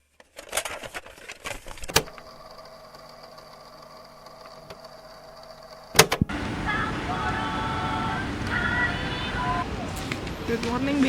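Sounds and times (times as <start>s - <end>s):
low machine hum: 2.1s - 10.5s
sharp clicks and knocks: 5.9s - 6.3s.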